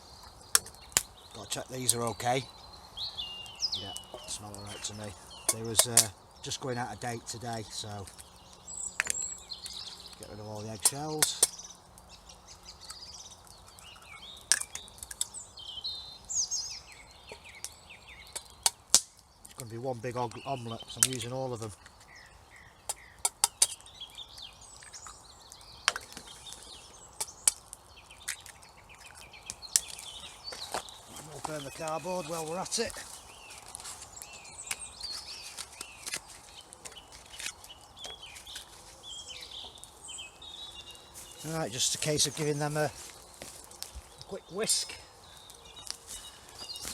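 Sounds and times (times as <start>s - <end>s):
small birds singing: 0.0s - 46.9s
sharp clicks and crackles: 0.2s - 2.4s, 8.0s - 12.2s, 12.8s - 15.4s, 17.3s - 19.8s, 20.9s - 22.1s, 22.8s - 40.0s
sharp clicks and taps: 22.9s - 23.9s.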